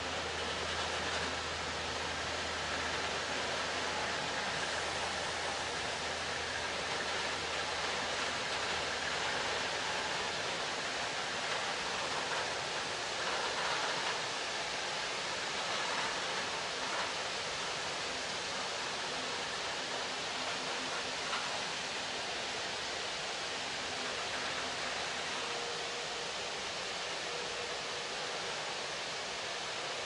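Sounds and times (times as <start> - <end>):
train wheels on rails: 0.0 - 30.0.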